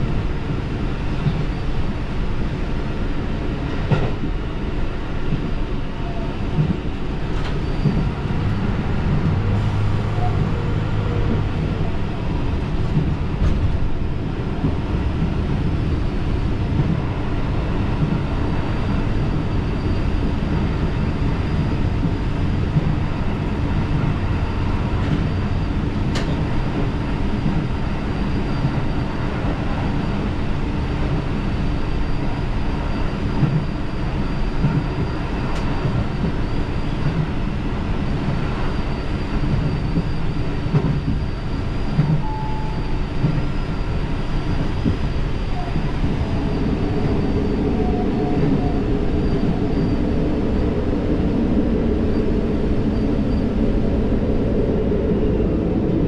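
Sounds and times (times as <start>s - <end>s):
railcar engine and wheels rumbling: 0.0s - 56.0s.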